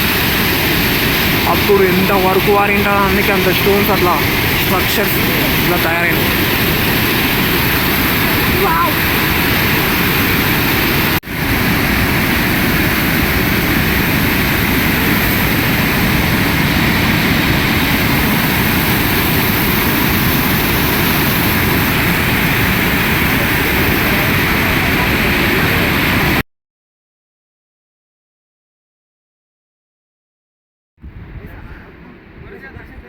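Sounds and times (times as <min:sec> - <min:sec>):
waterfall rushing: 0:00.0 - 0:26.4.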